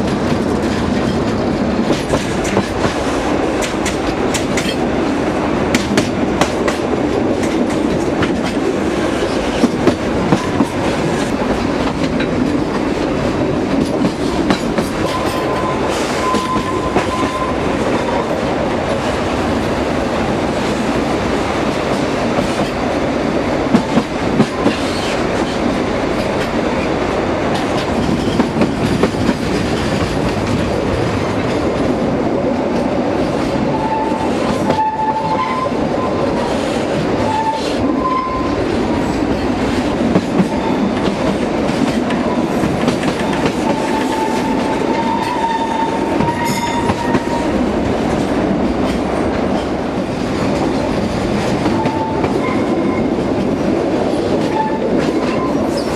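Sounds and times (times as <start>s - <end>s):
wheels clacking over rail joints: 0.0s - 5.0s, 5.7s - 19.1s, 23.7s - 31.9s
train wheels rumbling and rattling: 0.0s - 55.9s
high wheel squeal: 15.0s - 17.6s.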